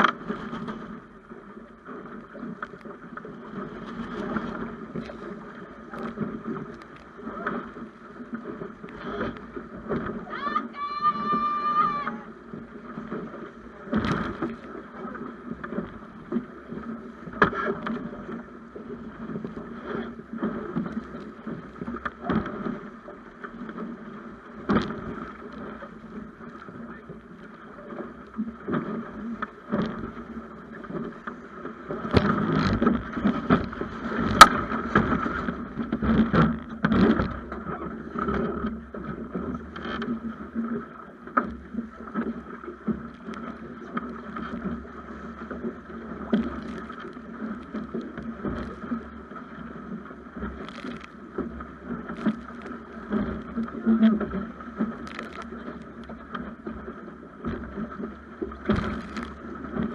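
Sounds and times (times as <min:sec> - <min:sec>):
water rushing along hull: 0:00.0 - 0:59.9
knocks and clicks from hull: 0:28.7 - 0:59.9.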